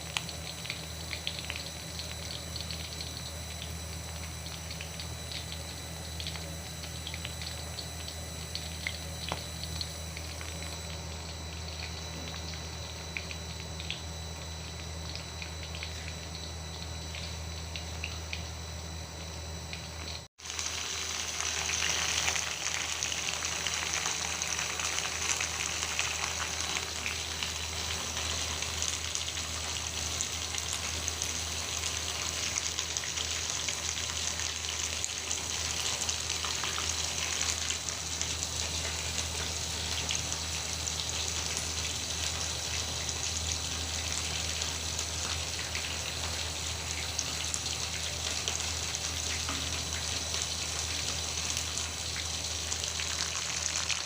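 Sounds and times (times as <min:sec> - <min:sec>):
low steady hum: 0:00.0 - 0:54.0
food sizzling in hot oil: 0:19.8 - 0:54.0.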